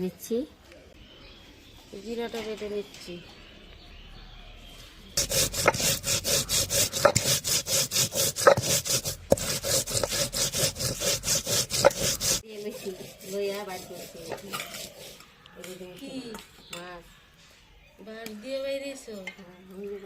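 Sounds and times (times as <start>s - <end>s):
stone grinding rubbing strokes: 5.2s - 15.4s.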